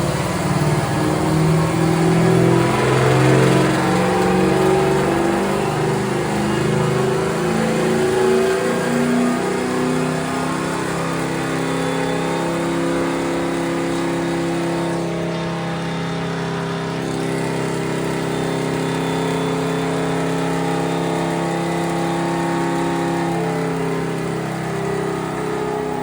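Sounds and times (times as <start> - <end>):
car engine steady drone: 0.0 - 26.0.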